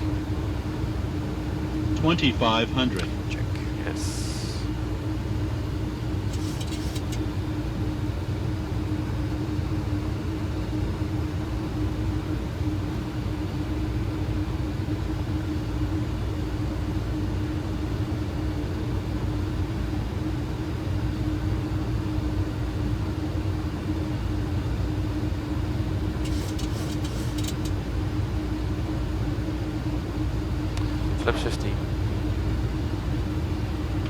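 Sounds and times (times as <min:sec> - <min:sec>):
airflow rushing around cockpit: 0:00.0 - 0:34.0
constant low hum: 0:00.0 - 0:34.0
clicks: 0:26.2 - 0:27.8.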